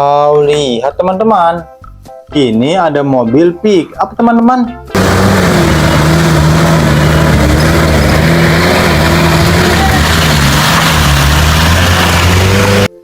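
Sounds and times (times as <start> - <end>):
loud rushing noise: 5.0 - 12.9
car engine running: 5.0 - 13.0.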